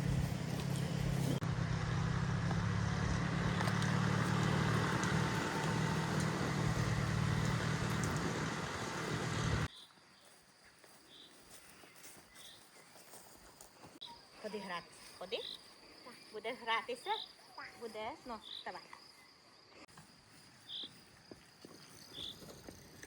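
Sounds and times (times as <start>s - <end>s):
motor humming: 0.0s - 9.7s.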